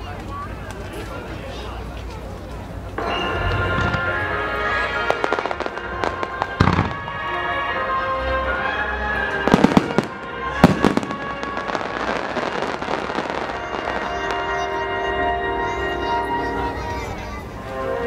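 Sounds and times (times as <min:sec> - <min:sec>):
fireworks crackling: 0:02.1 - 0:15.6
theme music: 0:03.0 - 0:18.0
fireworks bangs: 0:04.8 - 0:08.0, 0:09.2 - 0:14.9.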